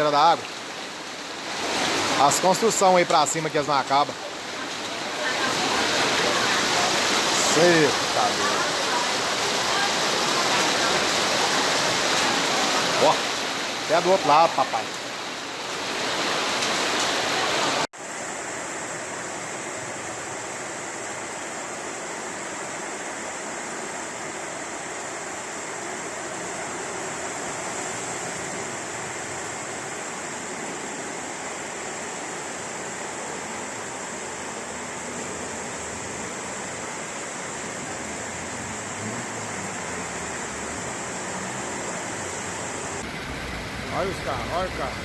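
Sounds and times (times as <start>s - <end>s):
floodwater rushing: 0.0s - 17.9s, 26.1s - 45.0s
heavy rain: 0.0s - 45.0s.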